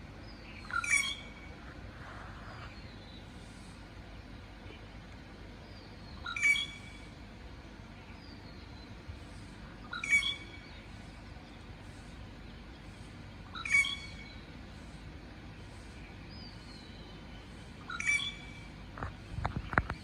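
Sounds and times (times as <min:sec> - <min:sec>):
faint high chirps: 0:15.6 - 0:18.8.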